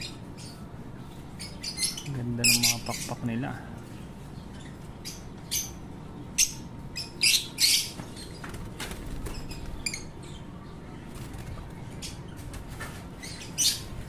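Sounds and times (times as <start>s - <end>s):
lovebirds chirping shrilly: 0.0s - 3.6s, 4.2s - 8.5s, 13.2s - 14.0s.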